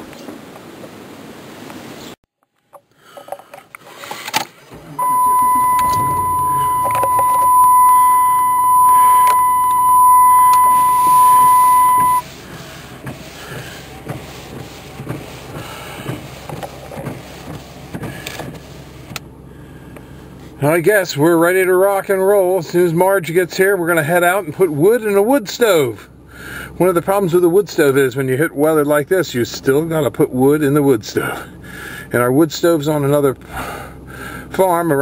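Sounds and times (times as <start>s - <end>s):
high-pitched electronic beep: 5.0s - 12.2s
low rumble: 5.0s - 12.2s.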